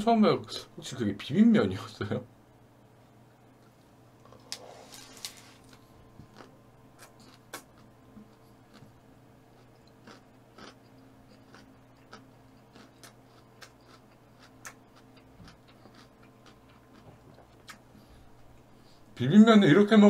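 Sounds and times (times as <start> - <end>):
faint steady hum: 0.0 - 20.0
person chewing quietly: 3.6 - 19.1.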